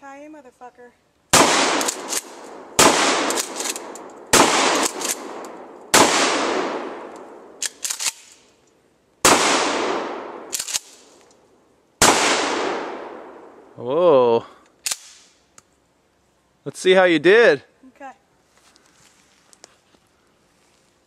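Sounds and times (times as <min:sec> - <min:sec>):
shotgun blasts echoing: 0:01.3 - 0:07.6, 0:09.2 - 0:10.9, 0:12.0 - 0:13.6
sharp clicks: 0:03.2 - 0:05.6, 0:07.1 - 0:08.8, 0:14.6 - 0:15.7.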